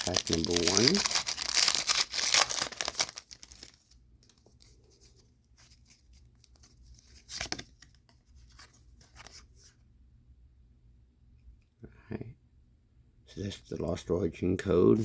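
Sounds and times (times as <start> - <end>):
foil wrapper tearing and crinkling: 0.0 - 3.9
trading cards rustling and clicking: 0.0 - 4.4.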